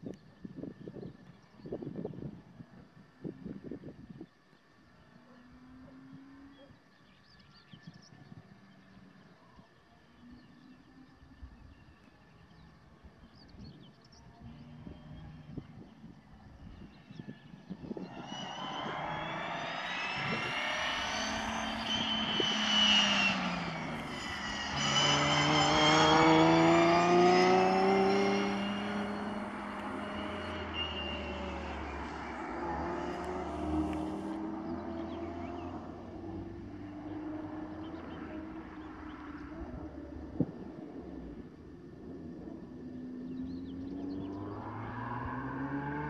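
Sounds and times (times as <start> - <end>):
race car engine accelerating: 17.3 - 46.0.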